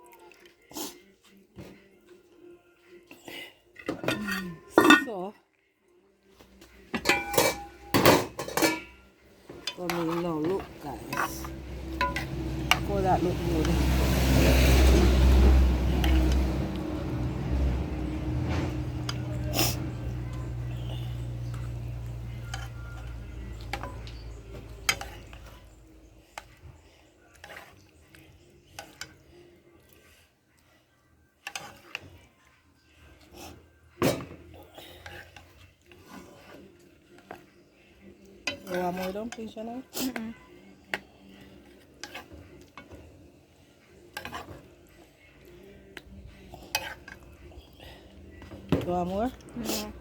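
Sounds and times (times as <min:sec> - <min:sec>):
cutlery clinking against dishes: 0:03.8 - 0:05.2, 0:06.9 - 0:12.9, 0:18.4 - 0:25.6, 0:33.9 - 0:35.6, 0:38.4 - 0:39.6, 0:44.0 - 0:44.8, 0:45.9 - 0:47.4.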